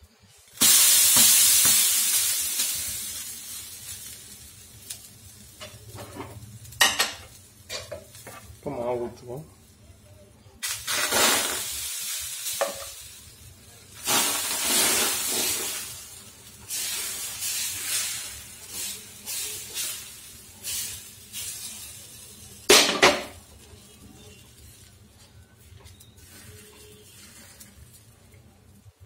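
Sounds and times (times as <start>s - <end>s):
batter sizzling on hot pan: 0.0s - 29.0s.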